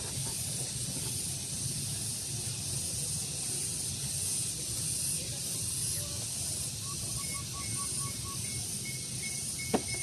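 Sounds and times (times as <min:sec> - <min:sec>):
high-pitched hiss: 0:00.0 - 0:10.0.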